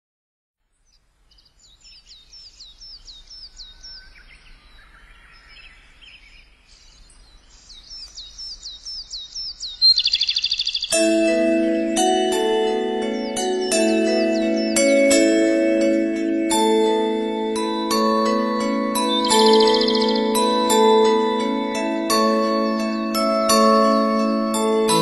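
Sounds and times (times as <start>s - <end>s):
bird trill: 0.8s - 25.0s
birds whistling and warbling: 0.9s - 11.1s, 12.4s - 15.9s, 19.0s - 21.1s
mallet percussion music: 10.9s - 25.0s.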